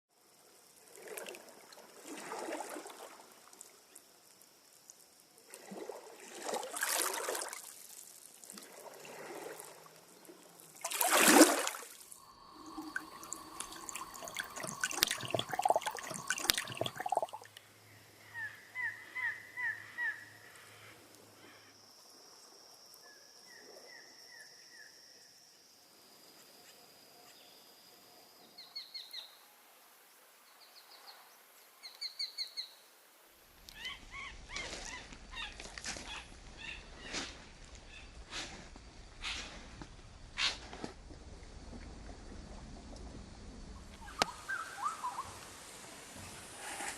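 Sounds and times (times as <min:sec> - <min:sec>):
small waves washing on beach: 0:05.4 - 0:17.5
birds chirping: 0:12.3 - 0:17.4.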